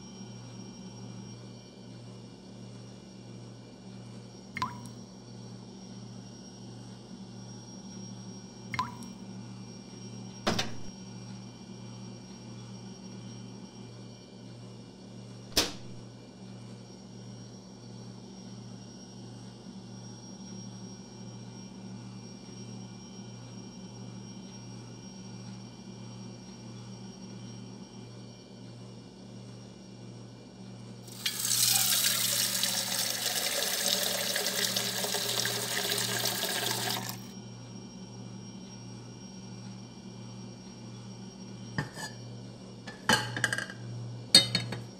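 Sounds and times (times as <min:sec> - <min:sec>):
sharp click: 0:15.5 - 0:16.0
tap water pouring into cup: 0:31.1 - 0:37.3.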